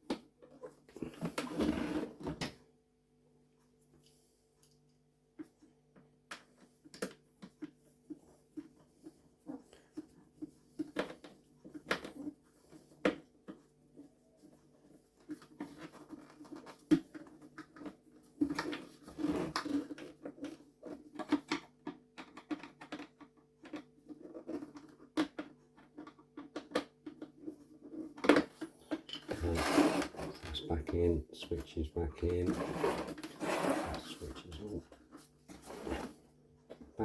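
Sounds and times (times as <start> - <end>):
plastic parts clicking and scraping: 14.6 - 36.9.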